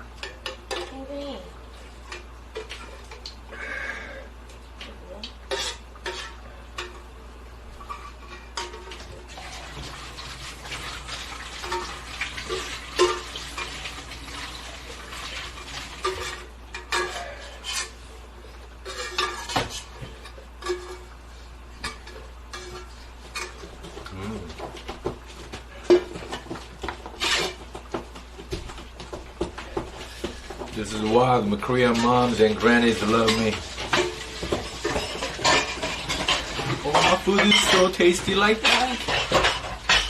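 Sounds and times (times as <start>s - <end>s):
utensils clinking on dishes: 5.4s - 7.1s, 7.7s - 14.3s, 15.2s - 18.0s, 18.8s - 21.1s, 21.8s - 25.0s, 25.7s - 27.7s, 29.5s - 40.0s.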